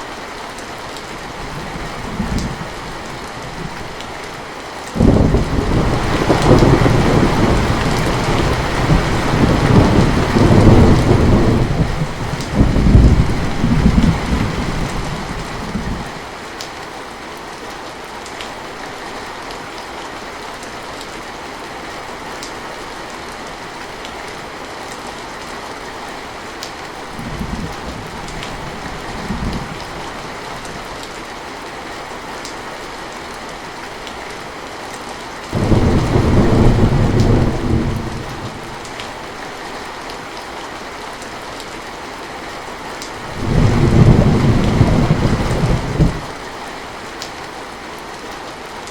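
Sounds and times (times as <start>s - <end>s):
heavy rain falling: 0.0s - 48.9s
thunder rumbling: 5.0s - 16.1s, 35.6s - 39.0s, 43.2s - 46.4s.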